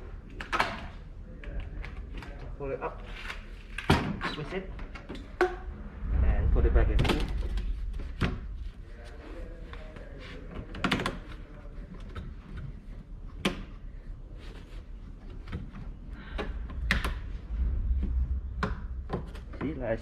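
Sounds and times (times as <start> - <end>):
low steady hum: 4.6 - 10.6, 11.2 - 20.0
sharp clicks and knocks: 15.4 - 17.3.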